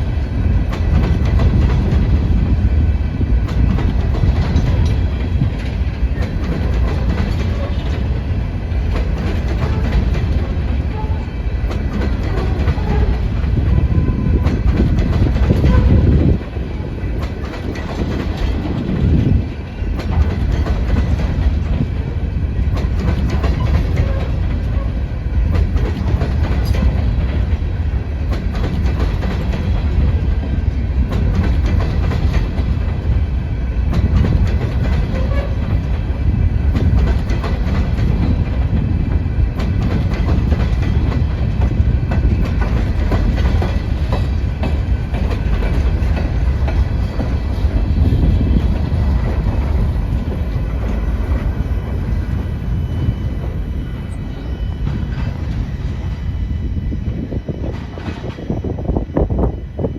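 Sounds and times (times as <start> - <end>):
freight cars rumbling: 0.0 - 58.9
wheels clicking over rail joints: 3.4 - 13.5, 14.3 - 33.2, 33.9 - 36.1.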